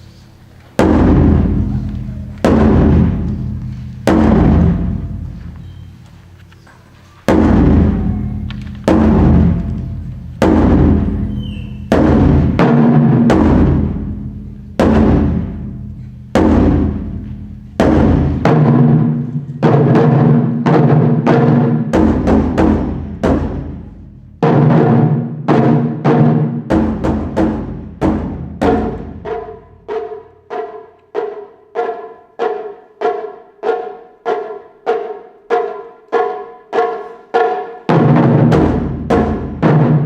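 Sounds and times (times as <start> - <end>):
taiko drum booms: 0.7 - 6.4, 7.2 - 40.0.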